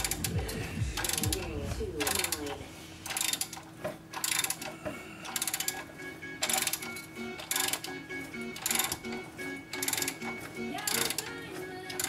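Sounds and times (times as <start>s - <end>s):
ratchet wrench clicking: 1.0s - 5.8s, 6.4s - 8.0s, 8.6s - 9.1s, 9.8s - 10.2s, 10.9s - 11.3s.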